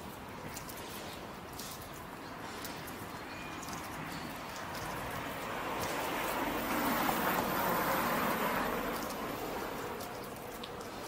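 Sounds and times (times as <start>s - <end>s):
vehicle passing: 2.6s - 11.0s.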